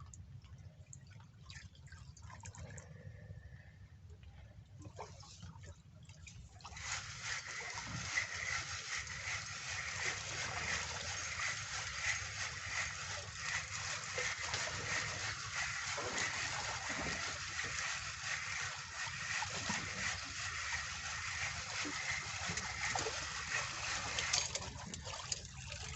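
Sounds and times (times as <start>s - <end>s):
rain hissing and splashing: 6.8s - 24.6s.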